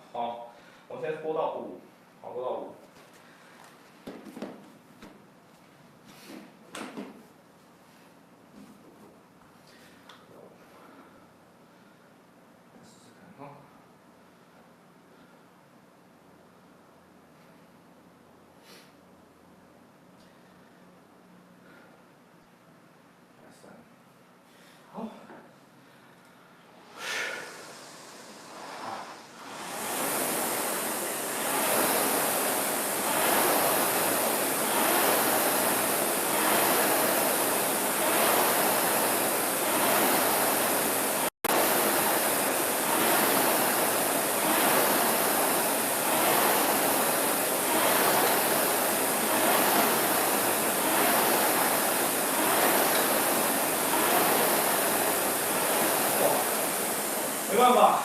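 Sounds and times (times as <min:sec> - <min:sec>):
rowing machine flywheel whooshing: 0:26.7 - 0:58.0.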